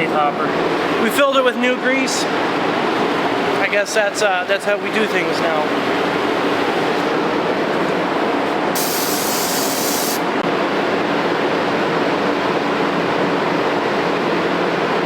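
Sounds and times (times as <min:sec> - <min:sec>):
high spray hiss: 0:08.8 - 0:10.3.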